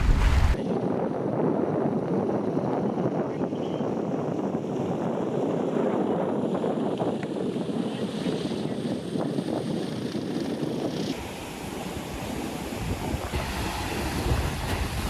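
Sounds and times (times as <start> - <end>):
water: 0.0 - 6.1, 11.0 - 15.0
wind buffeting microphone: 0.0 - 15.0.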